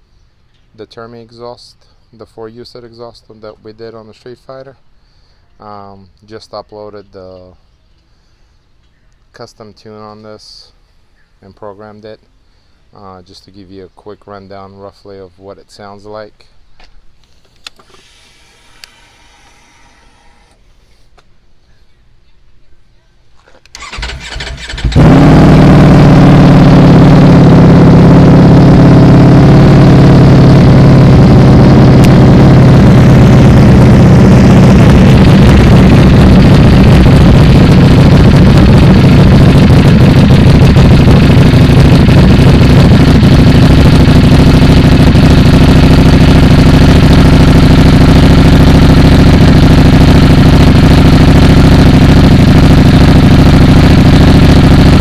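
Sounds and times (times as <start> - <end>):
motorcycle engine idling loudly: 23.8 - 55.0.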